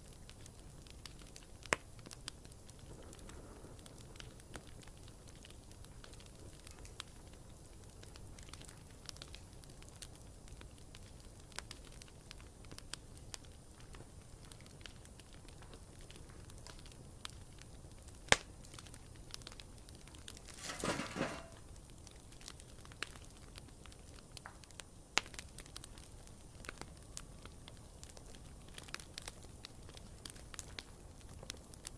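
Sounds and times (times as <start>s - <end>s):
campfire crackling and popping: 0.0s - 31.9s.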